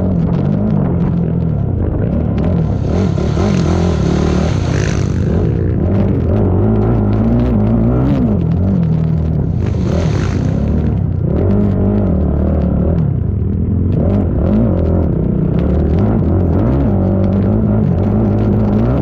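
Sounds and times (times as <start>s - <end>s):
atv engine revving: 0.0s - 19.0s
short noisy burst: 2.6s - 6.1s.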